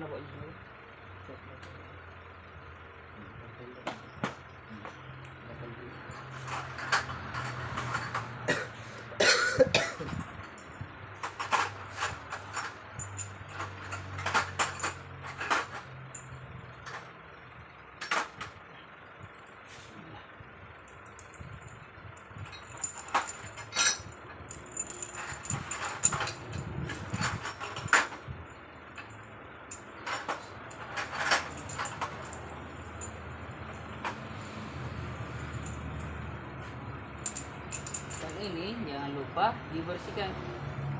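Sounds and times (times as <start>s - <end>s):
low steady hum: 0.0s - 38.8s
metal tools clinking: 5.2s - 17.4s, 18.0s - 18.6s, 20.9s - 38.8s.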